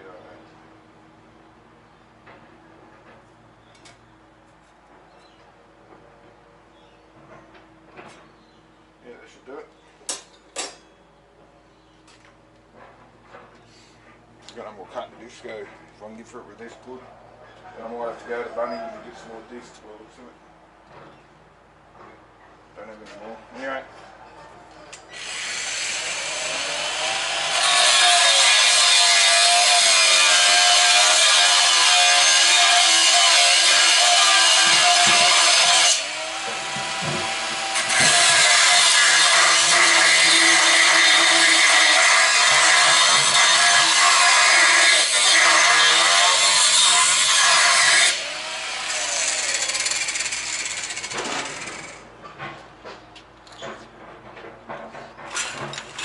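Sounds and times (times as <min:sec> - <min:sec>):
angle grinder cutting steel: 0:25.0 - 0:52.0.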